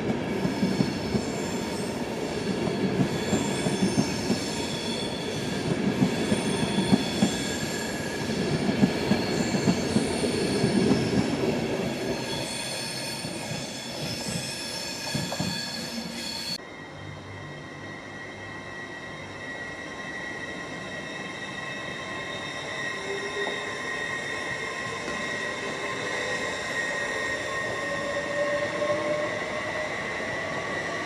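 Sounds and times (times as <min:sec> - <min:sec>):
train rumble and wheel clatter: 0:00.0 - 0:31.0
high-pitched wheel squeal: 0:00.6 - 0:31.0.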